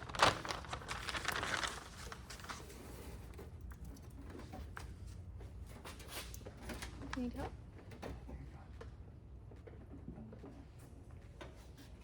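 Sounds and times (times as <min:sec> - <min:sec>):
stiff sheet crinkling and crackling: 0:00.0 - 0:02.9.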